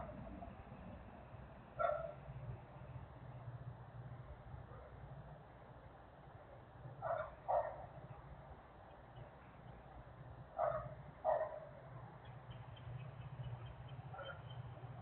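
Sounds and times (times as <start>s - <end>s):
steady low hum: 0.0s - 15.0s
dog barking: 1.8s - 2.2s, 7.0s - 8.0s, 10.6s - 11.8s, 14.1s - 14.6s.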